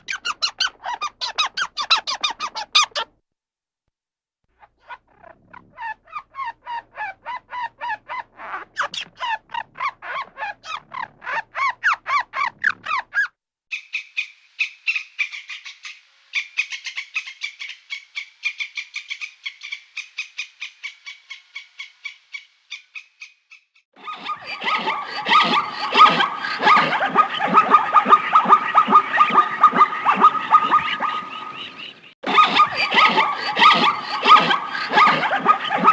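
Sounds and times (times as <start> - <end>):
higher faster animal calls: 24.0 - 35.9
rapid short animal calls: 24.0 - 35.9.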